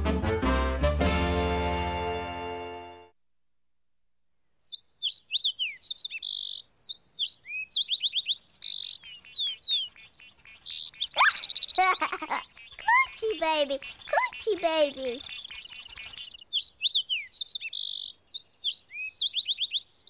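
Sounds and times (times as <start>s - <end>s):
cartoon songbird chirping: 4.6s - 20.0s.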